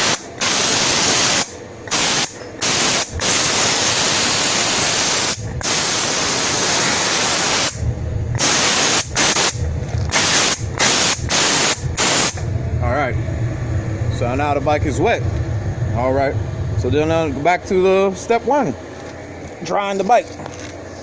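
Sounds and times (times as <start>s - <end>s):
steam cleaner hissing: 0.0s - 7.8s, 8.4s - 12.4s.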